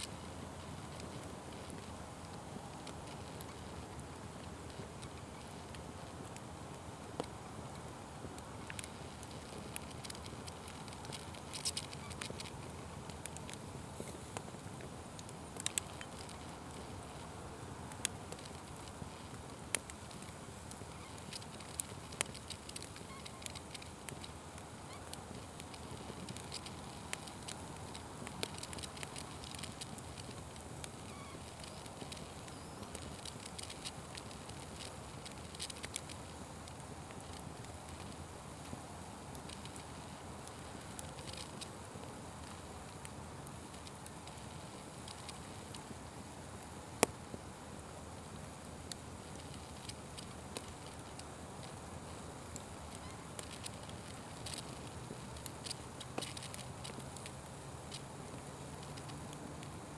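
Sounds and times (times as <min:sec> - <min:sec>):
wood fire crackling and popping: 0:00.0 - 0:59.9
fire hissing: 0:00.1 - 0:59.9.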